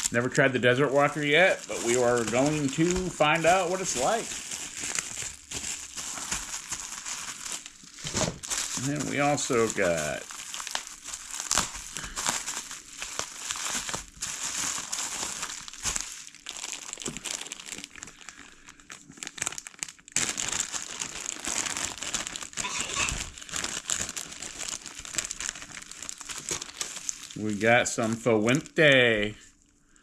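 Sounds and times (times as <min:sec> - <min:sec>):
plastic packaging crinkling: 0:00.0 - 0:29.8.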